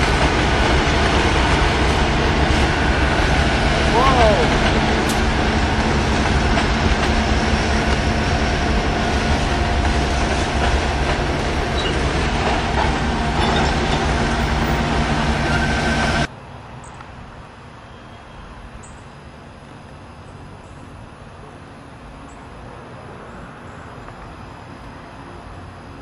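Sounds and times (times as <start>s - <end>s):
high ringing from train wheels: 0.0s - 16.3s
train rumbling: 0.0s - 16.4s.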